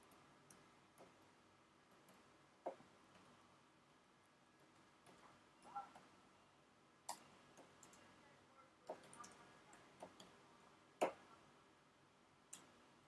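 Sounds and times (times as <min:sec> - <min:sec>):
faint sharp clicks: 0:12.5 - 0:12.8.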